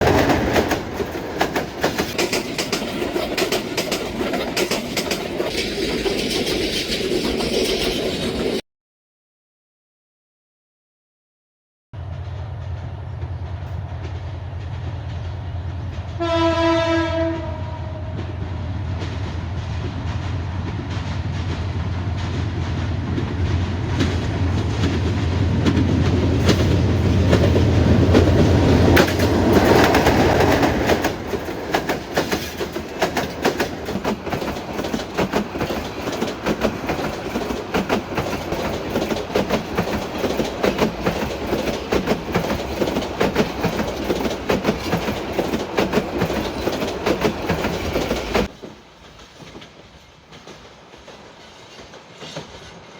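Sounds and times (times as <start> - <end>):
train running drone: 0.0 - 8.6, 12.0 - 52.9
wheels clattering over rail joints: 0.0 - 8.6, 23.0 - 52.9
train horn: 15.4 - 18.7.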